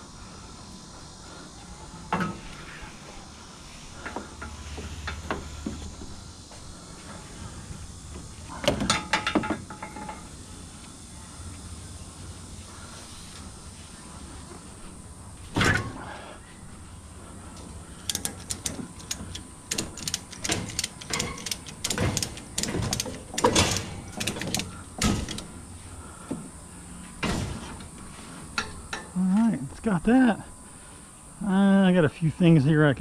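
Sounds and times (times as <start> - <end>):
ratchet strap clicking: 18.0 - 25.5.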